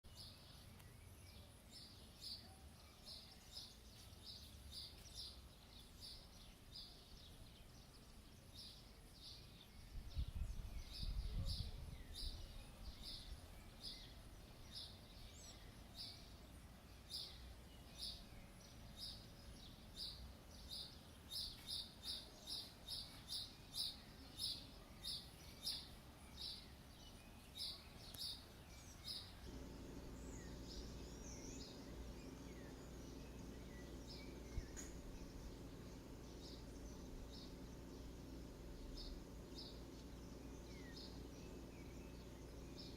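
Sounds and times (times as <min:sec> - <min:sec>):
bird chirping: 0:00.1 - 0:42.9.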